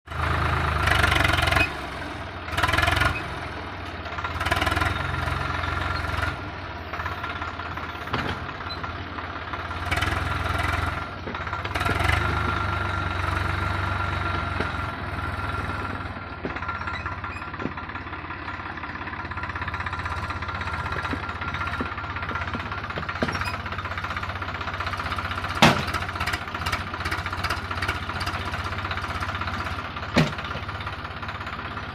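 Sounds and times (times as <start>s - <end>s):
tractor engine running: 0.1s - 31.9s
sharp knocks: 25.6s - 26.0s.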